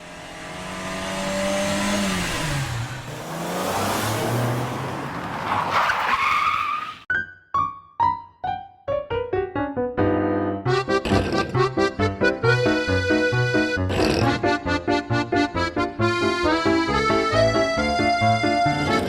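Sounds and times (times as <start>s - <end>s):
racing car engine: 0.0s - 7.0s
tire squeal: 2.6s - 7.1s
descending keyboard notes: 7.1s - 19.0s.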